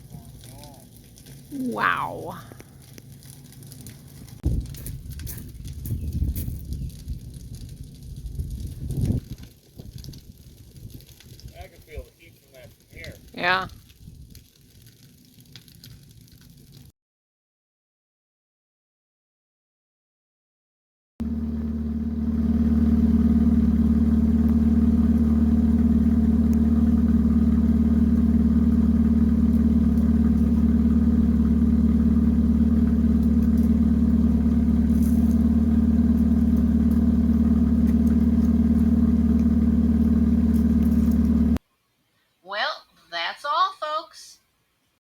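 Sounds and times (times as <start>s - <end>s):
engine idling: 21.2s - 41.6s.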